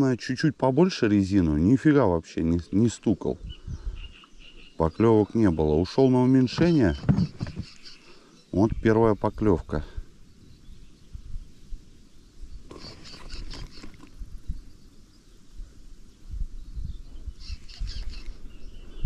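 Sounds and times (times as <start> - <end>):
small songbird chirping: 2.4 - 19.0
knocks: 6.5 - 7.8.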